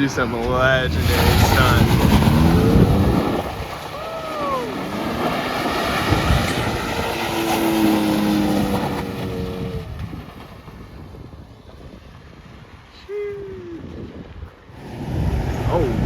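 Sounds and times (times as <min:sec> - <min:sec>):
car engine revving hard: 0:00.0 - 0:10.0
wind buffeting microphone: 0:00.0 - 0:16.0.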